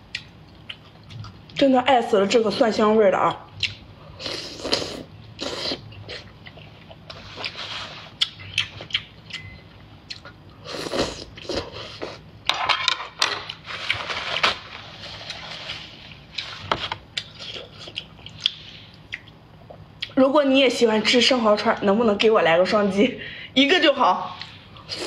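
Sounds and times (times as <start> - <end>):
wet biting and chewing: 4.6 - 10.4.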